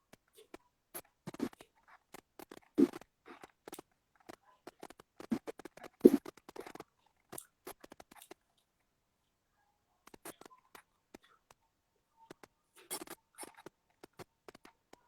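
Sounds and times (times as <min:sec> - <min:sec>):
irregular clicks and taps: 0:10.0 - 0:11.6, 0:12.3 - 0:15.0.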